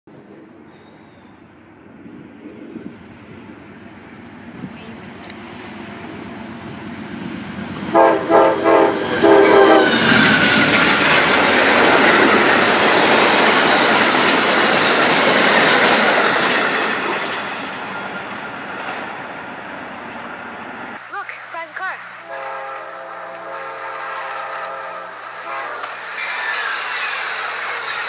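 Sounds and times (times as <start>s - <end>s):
train wheels rushing on rail: 0.1s - 21.2s, 21.8s - 28.0s
train horn blasts: 7.9s - 10.3s, 22.2s - 26.2s.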